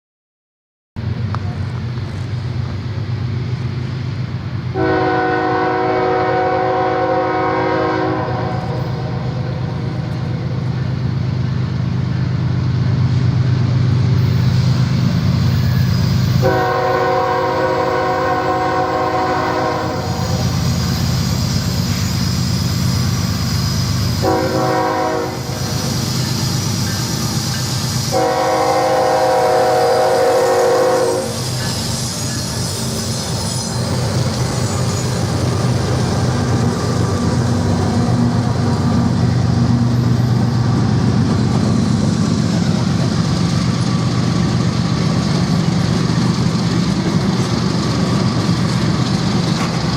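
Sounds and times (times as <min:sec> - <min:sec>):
diesel locomotive rumbling: 0:01.0 - 0:49.9
locomotive air horn blasts: 0:04.7 - 0:09.8, 0:16.4 - 0:20.6, 0:24.2 - 0:25.7, 0:28.1 - 0:31.4.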